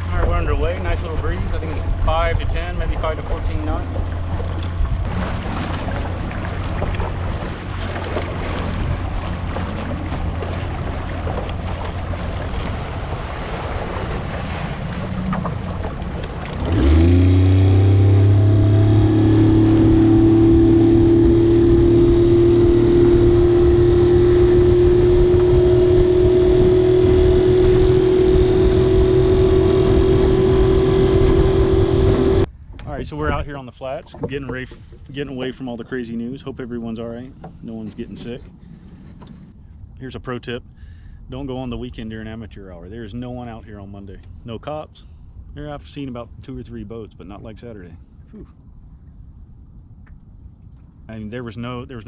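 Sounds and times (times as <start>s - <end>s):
motorboat engine: 0.0s - 33.4s
water noise: 0.0s - 52.0s
wind: 0.0s - 52.0s.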